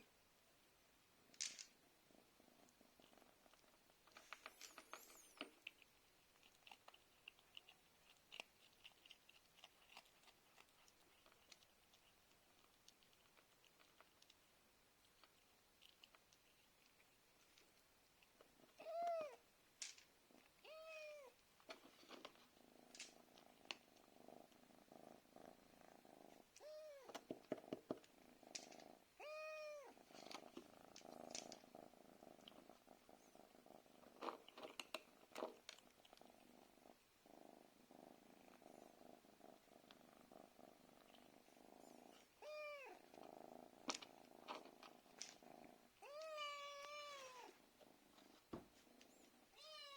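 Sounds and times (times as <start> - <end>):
cat purring: 0.0 - 49.9
cat meowing: 18.8 - 19.4, 20.6 - 21.3, 26.6 - 27.2, 29.2 - 29.9, 42.4 - 43.0, 46.0 - 47.6, 49.5 - 49.9.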